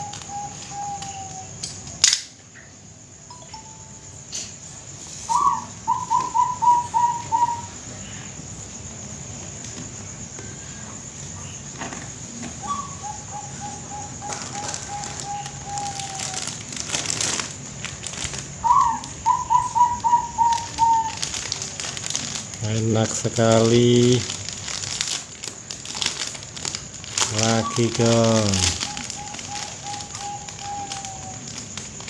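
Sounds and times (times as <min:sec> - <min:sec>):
dove cooing: 0:00.0 - 0:01.6, 0:05.3 - 0:08.0, 0:12.5 - 0:17.0, 0:18.5 - 0:22.5, 0:27.1 - 0:32.0.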